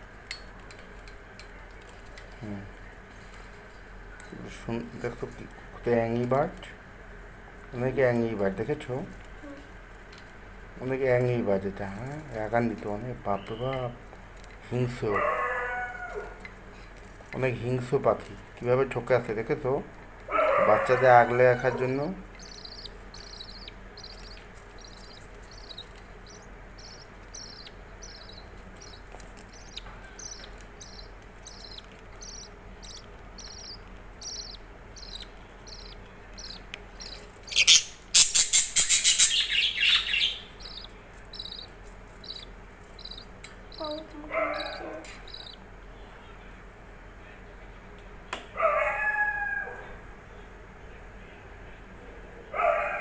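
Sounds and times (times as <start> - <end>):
bird high chirps: 22.4 - 45.6
lower bird calls: 22.4 - 45.6.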